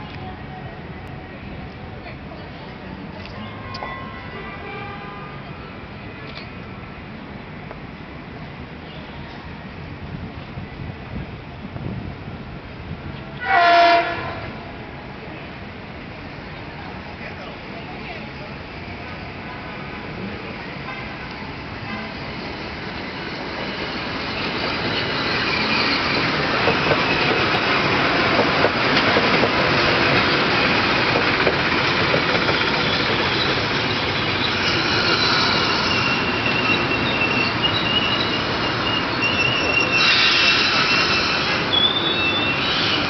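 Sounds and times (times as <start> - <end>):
rail joint clicks: 6.2 - 6.6, 22.8 - 43.0
train wheels rumbling on rail: 7.5 - 43.0
high wheel squeals: 22.0 - 27.9, 32.2 - 43.0.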